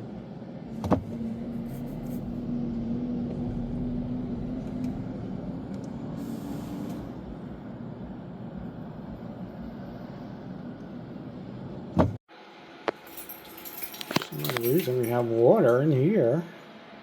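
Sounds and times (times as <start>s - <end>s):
vehicle engines humming: 0.0s - 11.9s.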